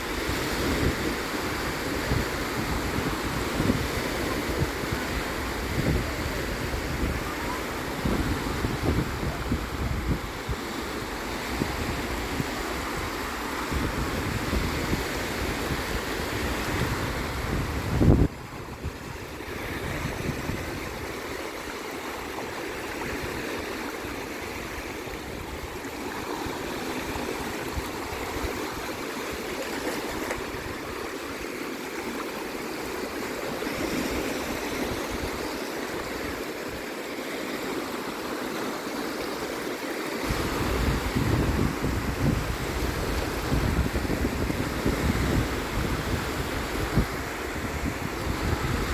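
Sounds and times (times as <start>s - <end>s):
wind buffeting microphone: 0.0s - 31.4s, 40.2s - 48.9s
sea waves washing: 0.0s - 48.9s.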